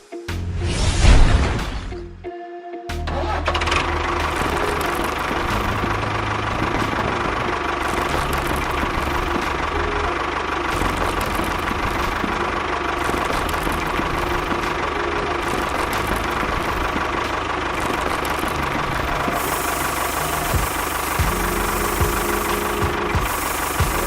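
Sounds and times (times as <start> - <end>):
small motor whining: 17.7 - 24.0.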